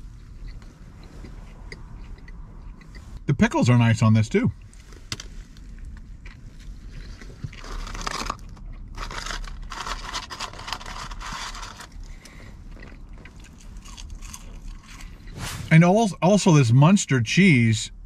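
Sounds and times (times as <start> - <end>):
person chewing crunchy food: 0.0 - 3.3, 4.6 - 15.4.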